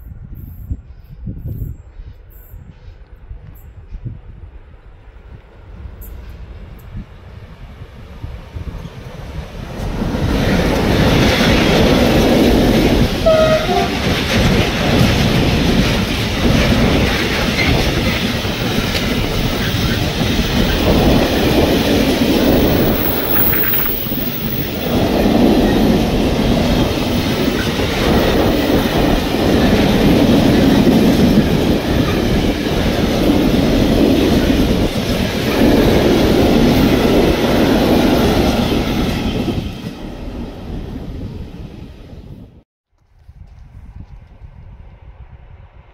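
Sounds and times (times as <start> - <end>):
freight train rumbling past: 0.0 - 42.6.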